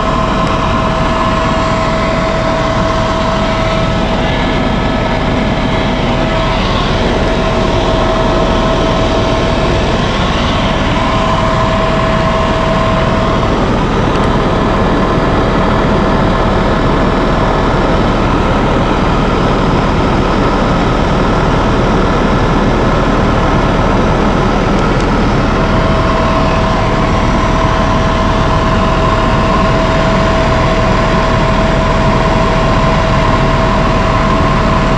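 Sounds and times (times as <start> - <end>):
helicopter engine and rotor drone: 0.0 - 34.9
high steady whine: 0.0 - 34.9.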